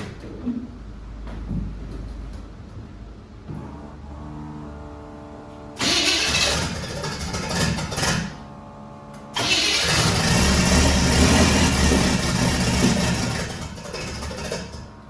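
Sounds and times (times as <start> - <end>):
car engine running loud: 3.6 - 15.0
starter cranking: 5.8 - 8.4, 9.4 - 15.0.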